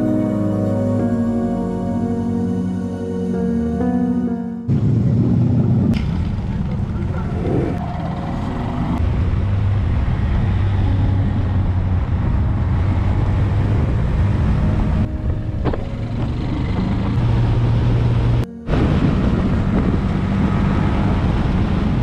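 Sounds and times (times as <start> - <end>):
motorcycle engine droning: 4.6 - 22.0.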